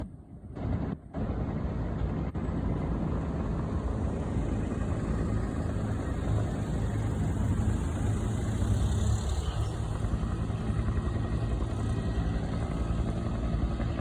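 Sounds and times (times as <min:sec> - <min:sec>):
helicopter rotor and engine: 0:00.0 - 0:14.0.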